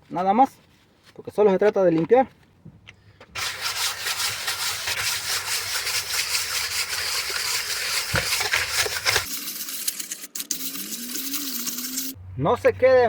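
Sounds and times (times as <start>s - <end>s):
sandpaper rubbing on metal: 3.4s - 12.2s.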